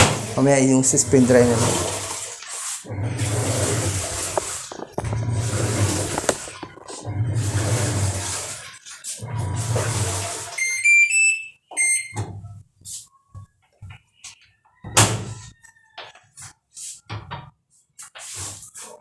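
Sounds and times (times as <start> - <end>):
washing machine control panel beeping: 10.2 - 12.4.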